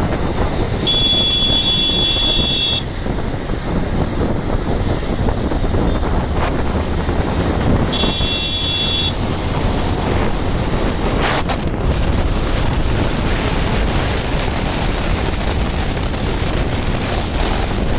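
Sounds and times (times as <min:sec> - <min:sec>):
traffic and road noise: 0:00.0 - 0:17.9
wind rushing over microphone: 0:00.0 - 0:17.9.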